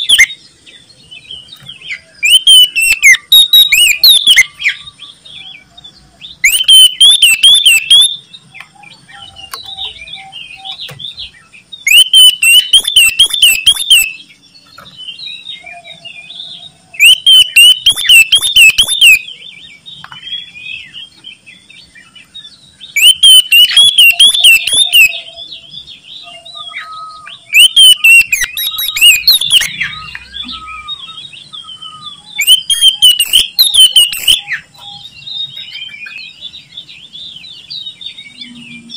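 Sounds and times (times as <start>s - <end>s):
bird twittering and chattering: 0.0s - 38.9s
bird whistling song: 0.0s - 38.9s.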